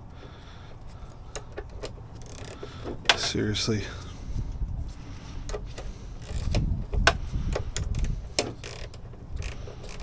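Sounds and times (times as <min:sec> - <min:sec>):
low handling rumble: 0:00.0 - 0:10.0
ratchet wrench clicking: 0:01.3 - 0:03.4, 0:05.8 - 0:10.0.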